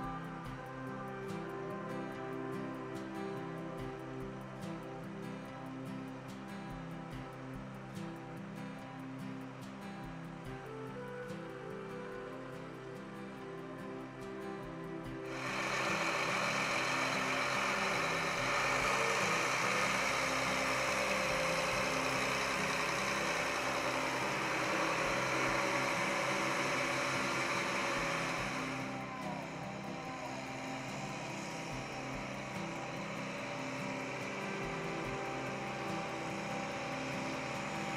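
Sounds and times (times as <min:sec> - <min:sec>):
tractor diesel engine running: 0:15.2 - 0:37.9.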